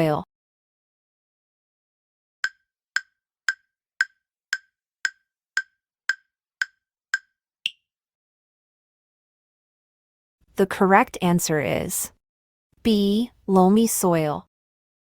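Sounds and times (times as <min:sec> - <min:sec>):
countdown timer ticks: 0:02.4 - 0:07.8.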